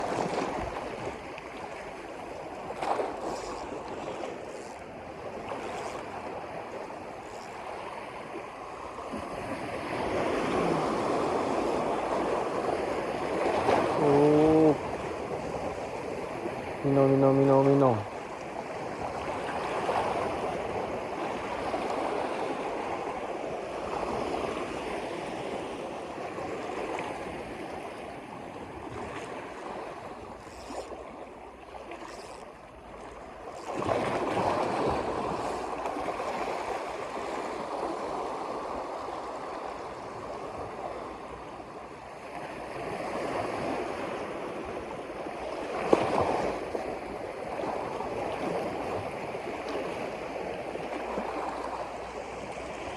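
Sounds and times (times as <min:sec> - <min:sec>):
water rushing: 0:00.0 - 0:20.4.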